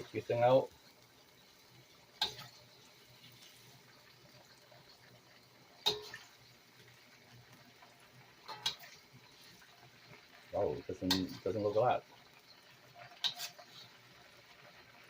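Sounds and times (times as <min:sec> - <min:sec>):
faint steady hiss: 0:00.0 - 0:15.0
utensils clinking on cookware: 0:05.8 - 0:06.3, 0:08.5 - 0:08.9, 0:11.0 - 0:11.9, 0:13.2 - 0:13.7.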